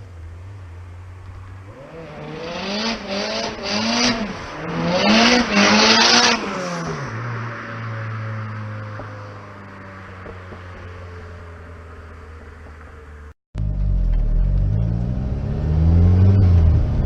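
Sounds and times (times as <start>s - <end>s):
car engine revving: 0.0s - 9.4s, 13.6s - 17.0s.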